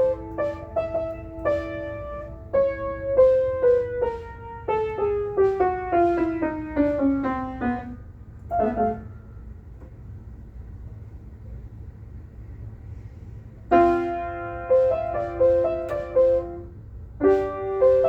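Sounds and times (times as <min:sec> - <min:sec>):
piano playing: 0:00.0 - 0:09.5, 0:13.7 - 0:18.0
low steady hum: 0:00.0 - 0:18.0.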